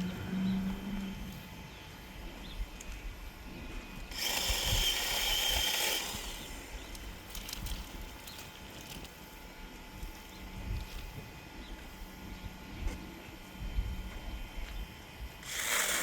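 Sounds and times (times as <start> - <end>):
electric chainsaw running: 4.0 - 9.0, 15.4 - 16.0.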